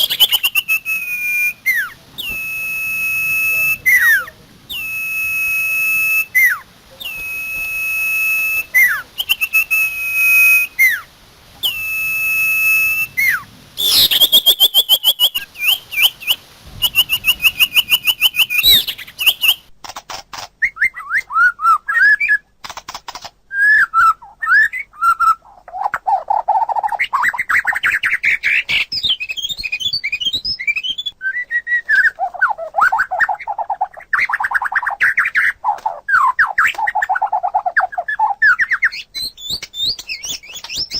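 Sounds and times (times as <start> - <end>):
long drawn bird whistles: 0.0 - 19.7, 23.5 - 25.4, 27.4 - 32.3
rapid bird trills: 0.0 - 19.7
varied birdsong phrases: 3.6 - 4.9, 13.1 - 19.7.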